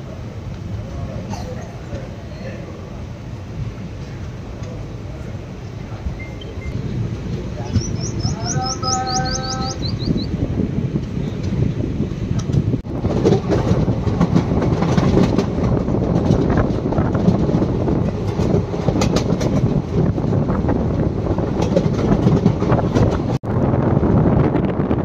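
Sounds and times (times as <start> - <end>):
train coaches rumbling: 0.0 - 25.0
wheels clattering over rail joints: 11.0 - 23.4.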